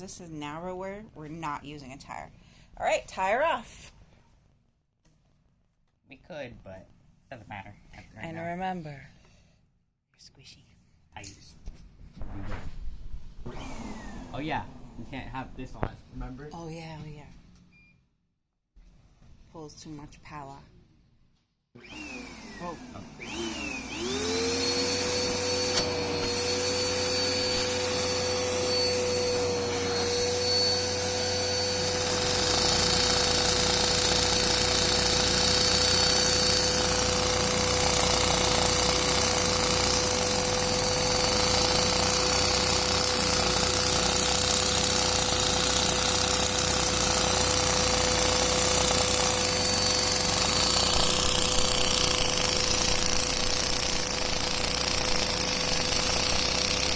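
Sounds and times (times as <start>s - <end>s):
vacuum cleaner motor whine: 13.4s - 15.8s, 21.8s - 56.9s.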